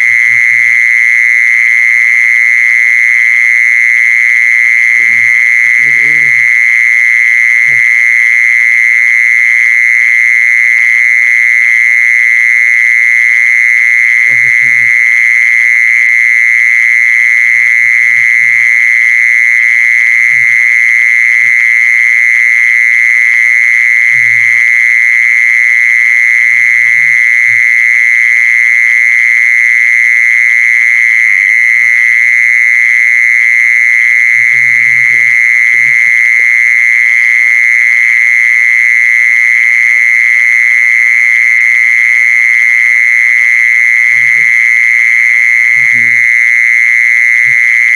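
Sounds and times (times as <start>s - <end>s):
insect shrill trill: 4.6s - 8.1s, 44.0s - 46.2s.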